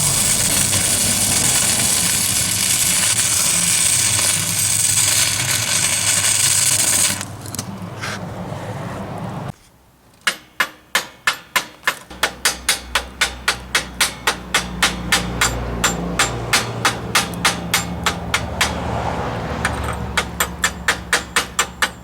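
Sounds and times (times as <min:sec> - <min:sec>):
chipping hammer striking steel: 0:00.0 - 0:07.3, 0:10.3 - 0:18.8, 0:20.2 - 0:22.0
welding arc crackling and hissing: 0:00.0 - 0:07.6.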